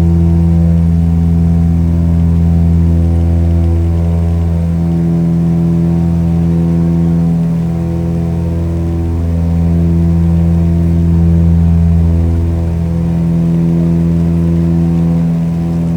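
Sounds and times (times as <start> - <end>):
airplane engine droning: 0.0 - 15.9.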